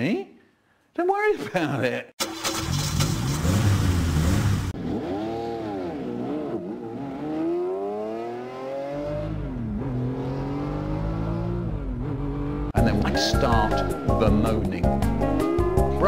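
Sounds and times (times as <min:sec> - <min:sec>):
car engine accelerating: 0:02.3 - 0:12.8.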